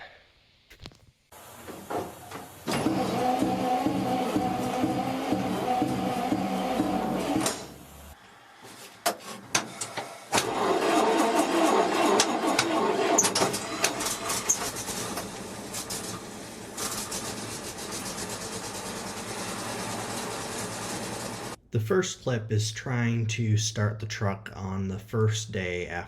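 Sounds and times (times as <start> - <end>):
engine starter cranking: 2.6 - 7.8, 10.3 - 21.6.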